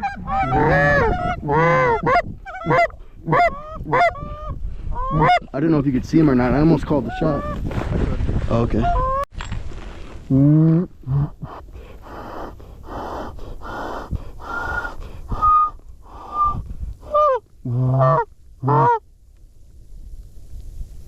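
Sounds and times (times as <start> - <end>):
goose call honks and moans: 0.0 - 5.5, 17.1 - 19.0.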